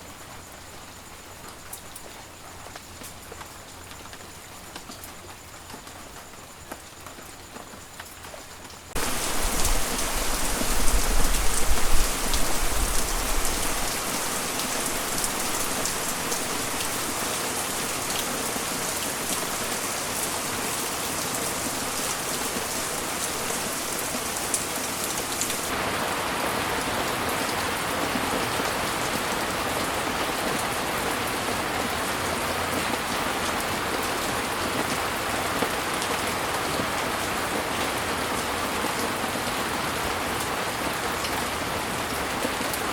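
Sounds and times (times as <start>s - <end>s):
heavy rain falling: 2.1s - 42.9s.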